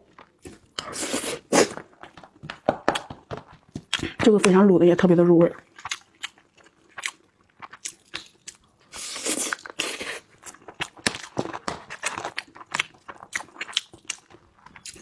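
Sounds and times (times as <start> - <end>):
person chewing food: 0.0 - 4.6, 5.6 - 15.0
wet smacks and clicks: 1.8 - 4.6, 10.8 - 15.0.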